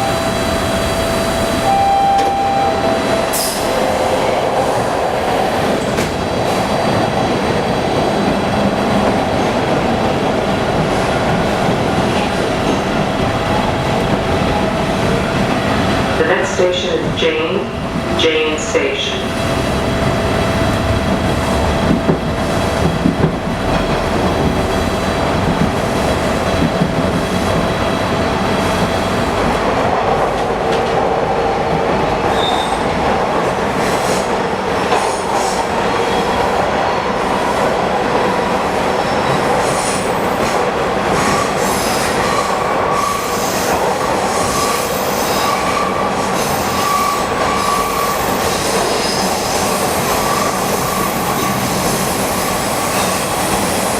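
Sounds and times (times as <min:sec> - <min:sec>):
subway wheels rumbling on rail: 0:00.0 - 0:53.9
high wheel squeal: 0:44.4 - 0:52.0.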